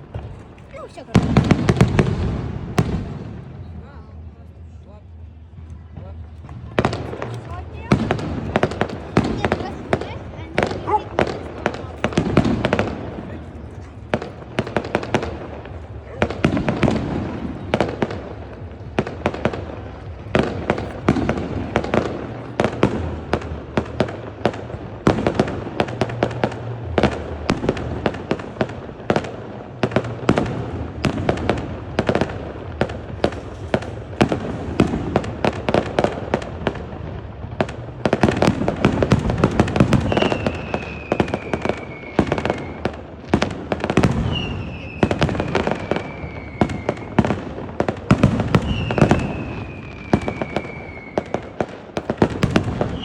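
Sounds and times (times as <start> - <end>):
fireworks cracking and banging: 0.0 - 4.3, 5.0 - 53.0
falling firework whistles: 39.9 - 42.9, 44.1 - 47.2, 48.4 - 51.6, 52.5 - 53.0.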